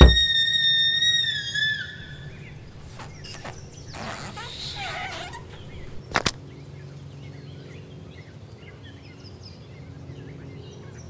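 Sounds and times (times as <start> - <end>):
sharp knocks: 0.0 - 0.3
faint birdsong chirps: 0.0 - 10.8.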